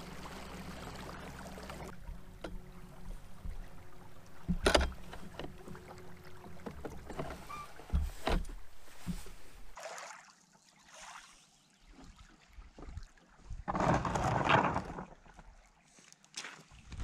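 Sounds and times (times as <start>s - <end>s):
kayak rumble on choppy water: 0.0s - 9.8s, 12.7s - 15.5s
water swishing against hull: 0.0s - 15.9s
knocks against boat: 4.4s - 5.9s.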